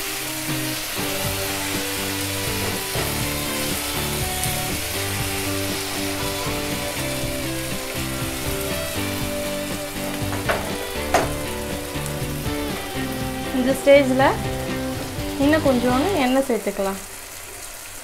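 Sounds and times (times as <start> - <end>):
soft background music: 0.0 - 16.5
vegetables sizzling in oil: 0.0 - 18.0
sharp knocks: 10.2 - 11.5.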